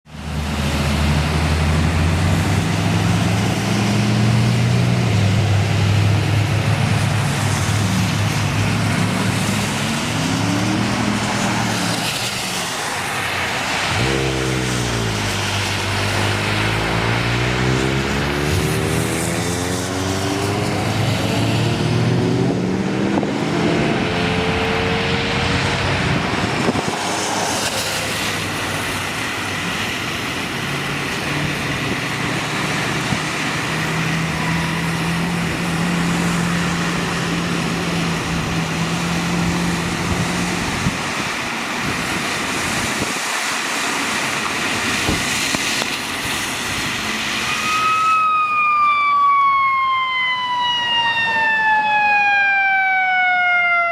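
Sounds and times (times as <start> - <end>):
vehicles on wet streets: 0.0 - 53.9
rain: 0.1 - 22.6, 23.2 - 53.9
vehicle engine passing: 0.2 - 41.0
emergency vehicle siren: 0.2 - 53.9.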